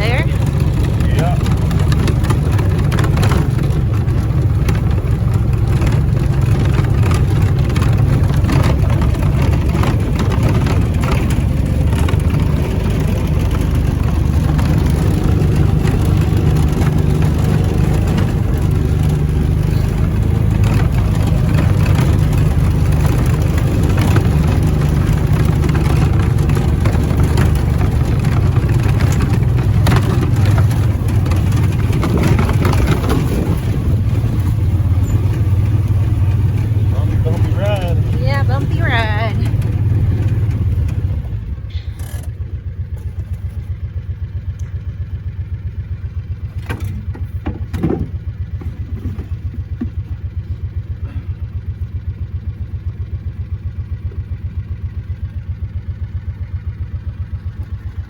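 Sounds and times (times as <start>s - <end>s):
vehicle engine droning: 0.0s - 58.0s
light knocks and rattles: 0.4s - 41.4s, 46.4s - 50.8s.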